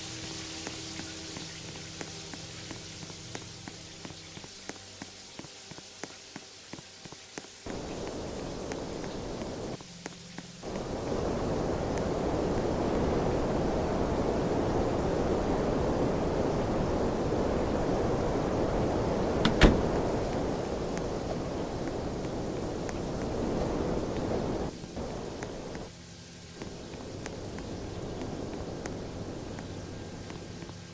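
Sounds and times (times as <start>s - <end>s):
air conditioner blowing air: 10.7s - 25.8s
sharp click: 19.4s - 20.0s.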